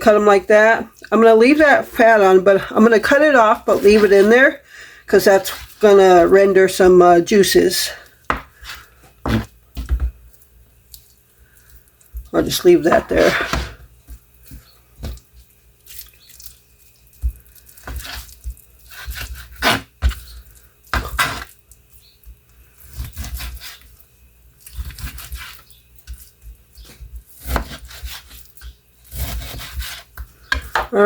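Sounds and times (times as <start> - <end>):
knife slicing meat: 17.4 - 21.6, 22.8 - 24.0, 24.6 - 26.3, 27.3 - 30.2
blade tapping cutting board: 27.5 - 30.9.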